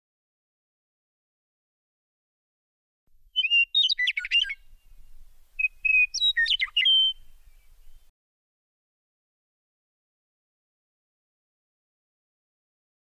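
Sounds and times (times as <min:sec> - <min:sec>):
songbird whistles and trills: 0:03.4 - 0:08.1.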